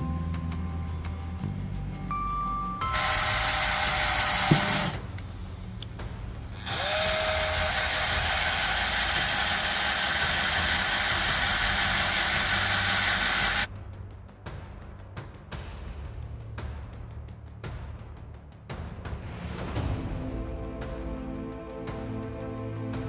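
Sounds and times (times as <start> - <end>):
handheld power tool running: 2.8 - 5.2, 6.6 - 13.7.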